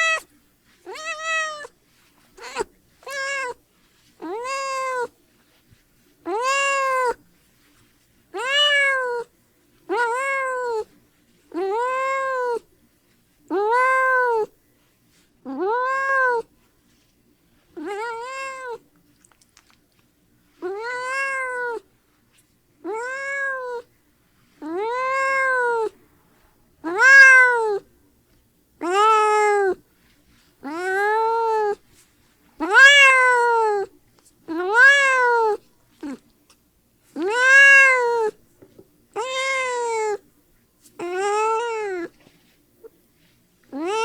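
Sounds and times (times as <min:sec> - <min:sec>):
cat meowing: 0:00.0 - 0:00.3, 0:00.9 - 0:01.7, 0:02.4 - 0:03.6, 0:04.2 - 0:05.1, 0:06.3 - 0:07.2, 0:08.4 - 0:09.3, 0:09.9 - 0:10.9, 0:11.5 - 0:12.6, 0:13.5 - 0:14.5, 0:15.5 - 0:16.5, 0:17.8 - 0:18.8, 0:20.6 - 0:21.9, 0:22.8 - 0:23.9, 0:24.6 - 0:26.0, 0:26.8 - 0:27.9, 0:28.8 - 0:29.8, 0:30.6 - 0:31.8, 0:32.6 - 0:33.9, 0:34.5 - 0:36.2, 0:37.2 - 0:38.4, 0:39.2 - 0:40.2, 0:41.0 - 0:42.2, 0:43.7 - 0:44.0.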